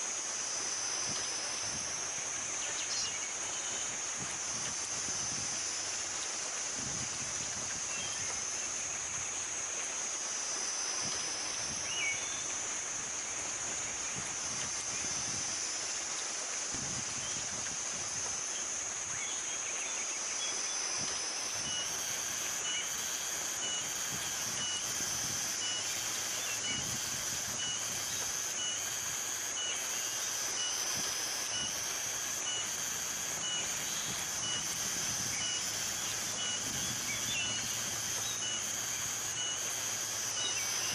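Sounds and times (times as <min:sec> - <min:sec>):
high-pitched drone: 0:21.0 - 0:40.9.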